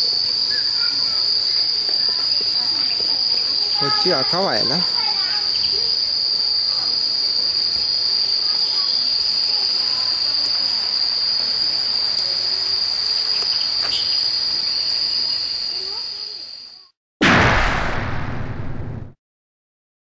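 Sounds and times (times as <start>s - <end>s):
insects shrilling: 12.4s - 16.9s.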